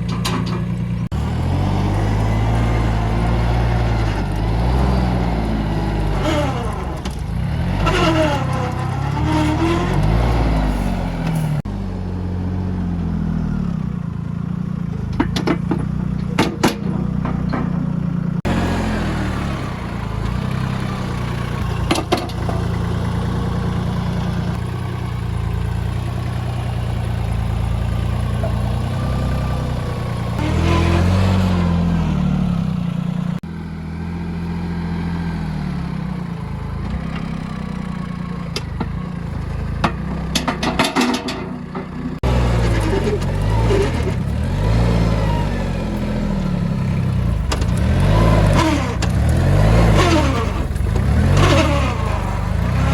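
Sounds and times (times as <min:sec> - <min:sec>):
clicks and clatter: 0:00.0 - 0:01.0, 0:39.8 - 0:44.2
tractor engine running: 0:00.0 - 0:52.9.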